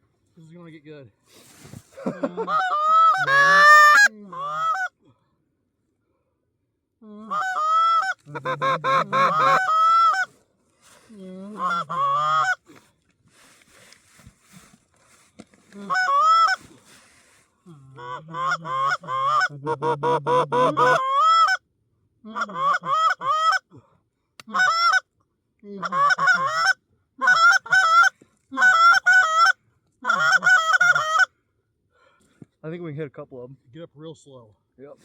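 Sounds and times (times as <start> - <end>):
goose honking and clucking: 2.3 - 4.9, 7.3 - 10.3, 11.6 - 12.6, 15.8 - 16.6, 18.0 - 21.6, 22.4 - 23.6, 25.8 - 31.3.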